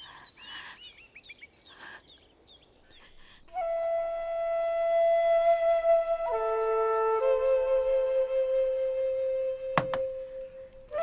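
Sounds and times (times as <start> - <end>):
small birds chirping: 0.0 - 3.5
flute holding long note: 3.6 - 11.0.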